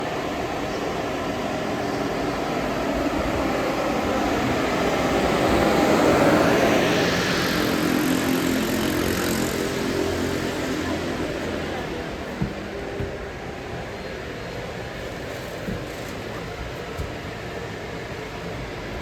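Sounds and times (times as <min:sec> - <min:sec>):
rising engine whine: 0:00.0 - 0:13.5
bus engine running: 0:00.0 - 0:19.0
road noise: 0:00.0 - 0:19.0.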